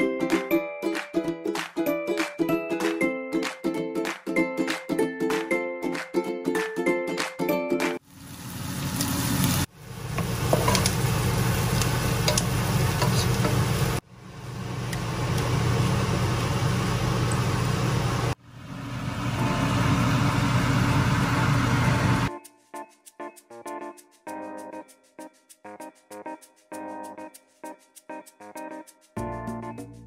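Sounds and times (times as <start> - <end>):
shrimp and vegetables sizzling: 8.0 - 22.3.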